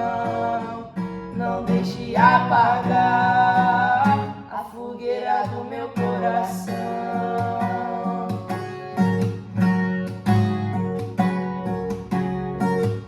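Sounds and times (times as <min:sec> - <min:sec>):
person singing: 0:00.0 - 0:08.7
acoustic guitar strumming: 0:00.0 - 0:13.0.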